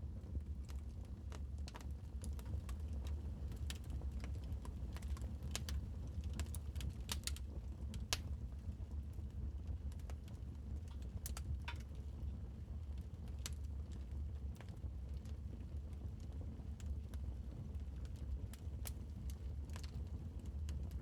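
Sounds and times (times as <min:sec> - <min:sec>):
low rumble of fire: 0:00.0 - 0:21.0
wood fire crackling: 0:01.7 - 0:07.4.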